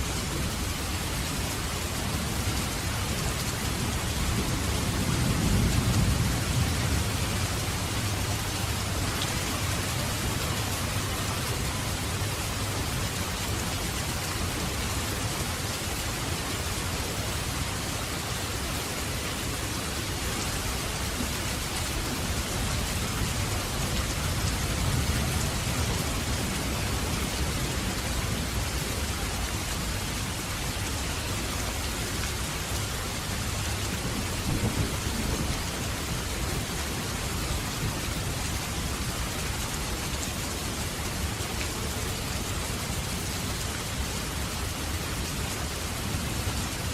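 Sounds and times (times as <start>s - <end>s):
steady rain: 0.0s - 46.9s
thunder rumbling: 3.8s - 11.2s, 33.9s - 36.7s.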